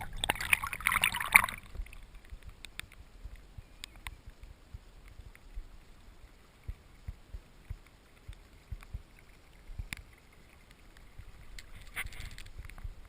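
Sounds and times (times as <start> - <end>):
water lapping against hull: 0.0 - 2.3.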